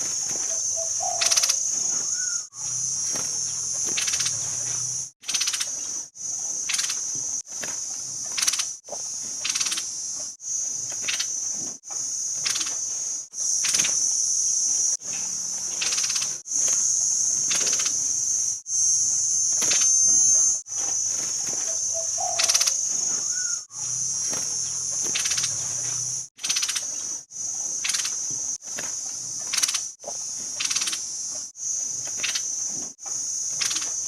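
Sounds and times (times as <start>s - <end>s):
sharp chirps: 0.2s - 5.8s, 15.7s - 26.9s
high-pitched buzzing trill: 12.1s - 26.3s.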